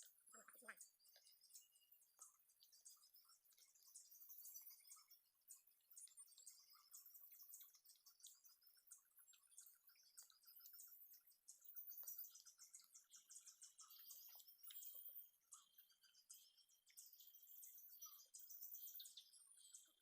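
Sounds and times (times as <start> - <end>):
birds chirping with trills: 0.0 - 20.0.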